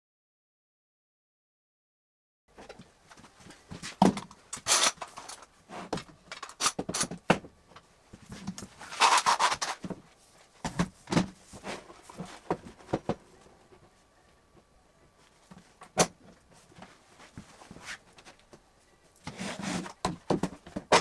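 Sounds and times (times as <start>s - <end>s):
objects knocking and clattering: 3.8s - 4.4s, 10.6s - 13.3s, 19.9s - 21.0s.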